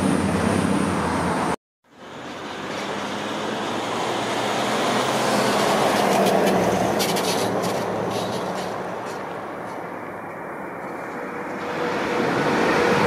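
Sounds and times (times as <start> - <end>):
train passing: 0.0 - 13.0
wheels clicking on rail: 5.0 - 13.0.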